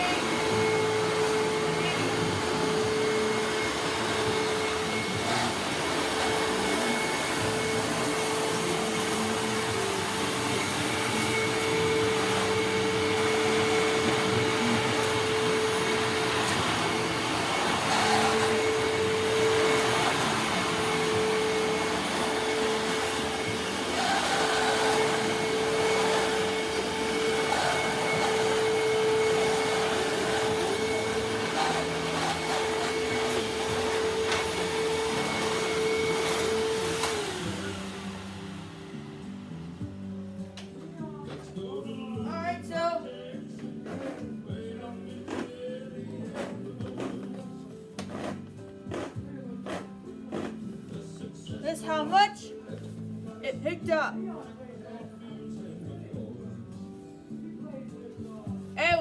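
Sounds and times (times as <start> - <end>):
vacuum cleaner running: 0.0 - 42.5.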